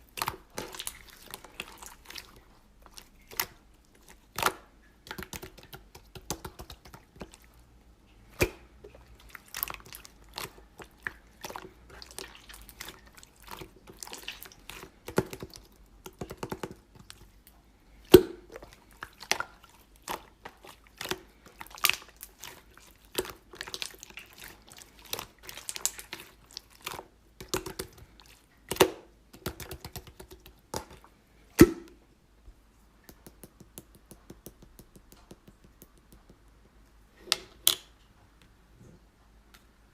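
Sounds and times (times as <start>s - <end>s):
slime squishing and popping: 18.1s - 31.0s.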